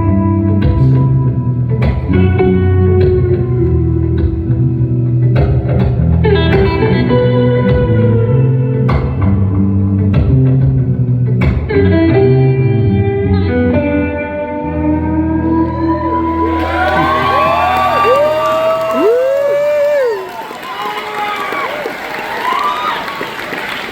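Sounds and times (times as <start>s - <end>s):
strummed guitar chords: 0.0s - 18.1s
audience cheering and whistling: 15.5s - 23.9s.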